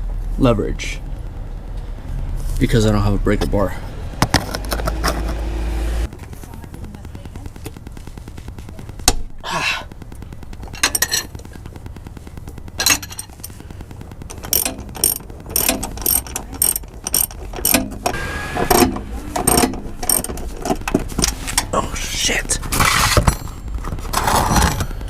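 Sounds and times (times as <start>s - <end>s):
ratchet wrench clicking: 10.7s - 11.3s, 12.8s - 13.6s, 14.3s - 21.7s
metal clicks and clinks: 10.7s - 11.4s, 12.8s - 13.6s, 14.3s - 21.7s.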